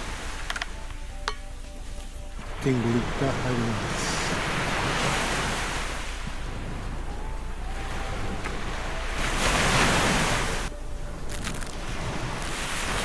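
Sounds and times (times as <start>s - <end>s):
ocean surf washing on sand: 0.0s - 13.0s
wind on microphone: 0.0s - 13.0s.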